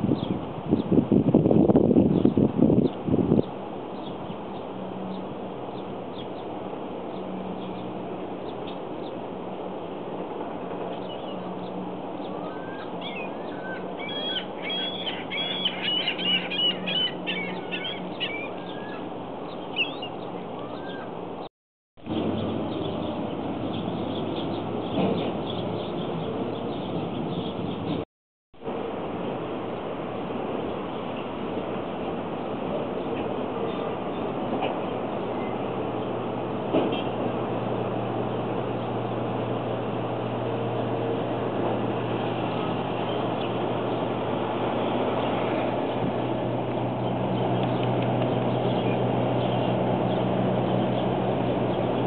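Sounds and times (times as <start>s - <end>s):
small birds chirping: 10.9s - 21.2s, 22.4s - 28.0s.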